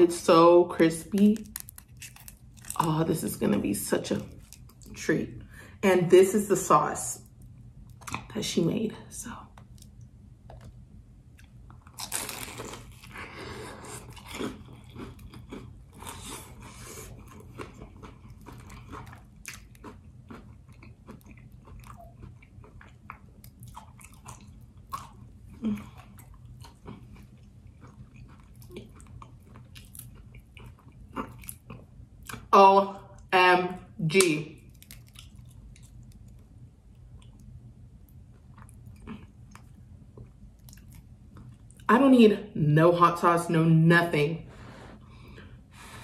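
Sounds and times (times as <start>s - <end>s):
chewing with crackles: 1.2s - 3.0s, 4.2s - 5.0s, 9.5s - 32.5s, 34.6s - 41.9s
crunch of biting crispy food: 11.9s - 22.3s.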